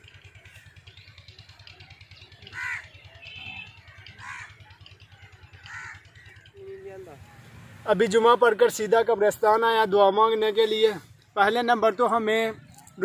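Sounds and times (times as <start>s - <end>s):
bird calling: 0.0s - 7.1s.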